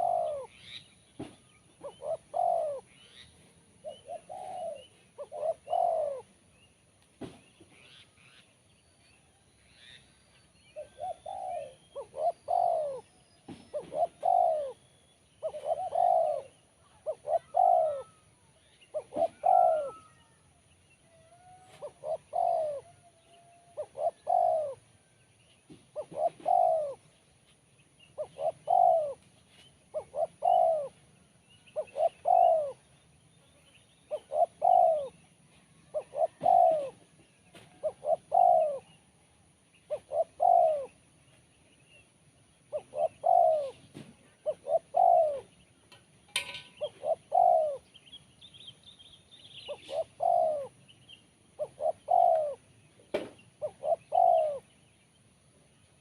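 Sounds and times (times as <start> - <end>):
dove cooing: 0.0 - 6.4, 10.8 - 20.5, 21.1 - 25.0, 25.7 - 27.2, 28.1 - 29.2, 29.8 - 32.9, 34.1 - 39.1, 39.8 - 41.1, 42.7 - 45.6, 46.3 - 48.2, 49.5 - 50.9, 51.5 - 54.8
small birds chirping faintly: 0.0 - 56.0.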